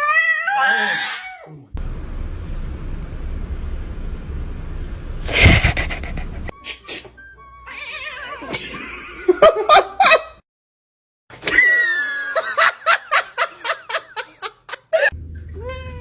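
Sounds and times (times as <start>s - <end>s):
person laughing: 5.2s - 6.9s, 8.4s - 10.4s, 11.4s - 15.2s
quick giggles: 5.3s - 6.5s.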